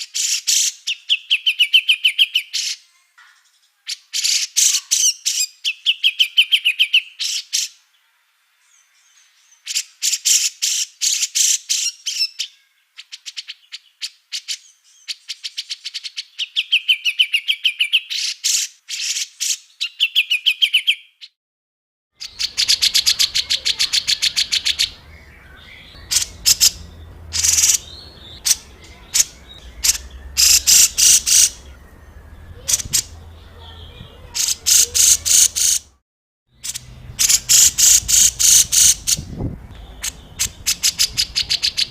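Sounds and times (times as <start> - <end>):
songbirds chattering calls: 22.2 - 36.0, 36.6 - 41.9
low hum: 25.0 - 33.4.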